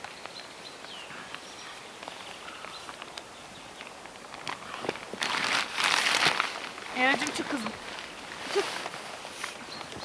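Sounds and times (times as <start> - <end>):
faint bird calls: 0.9 - 3.8
rustling inside a tent: 1.4 - 10.0.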